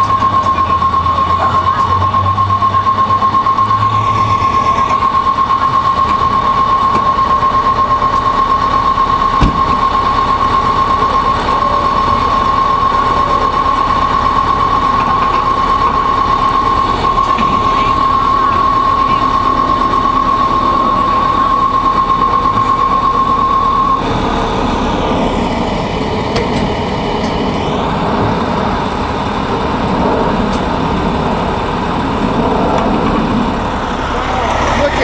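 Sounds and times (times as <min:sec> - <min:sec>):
low hum: 0:00.0 - 0:35.0
pulsing high-pitched machinery whine: 0:00.0 - 0:35.0.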